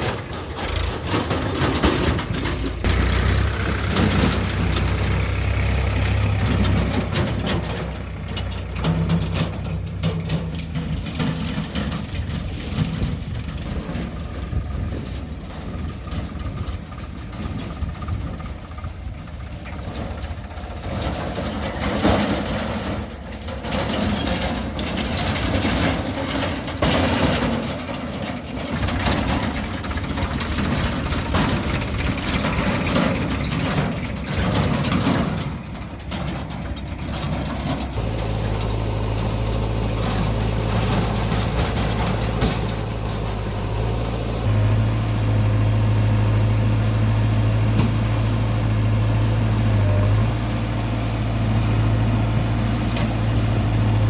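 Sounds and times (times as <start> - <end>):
digging knocks and clatter: 0.0 - 44.7
heavy diesel engine working: 0.0 - 54.0.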